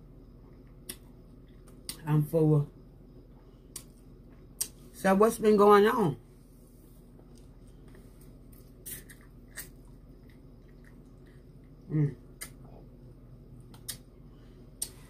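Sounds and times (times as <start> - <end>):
person chewing food: 7.2 - 12.8
mouth clicks and smacks: 12.3 - 12.7, 13.7 - 14.1.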